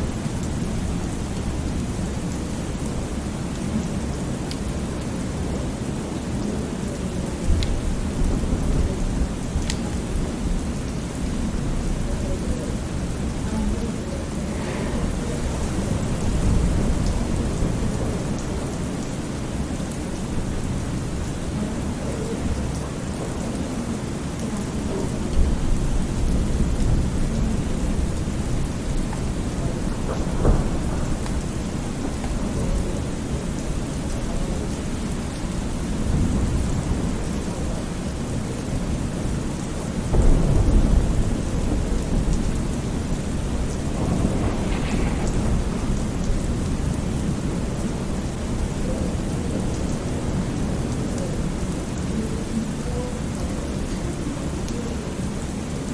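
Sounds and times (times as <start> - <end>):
steady rain falling: 0.0 - 55.9
rolling thunder: 14.2 - 22.8, 24.9 - 38.1, 40.0 - 51.1.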